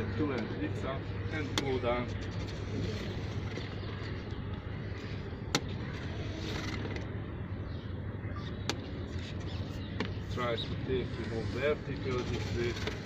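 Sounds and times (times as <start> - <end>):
constant low hum: 0.0 - 13.0.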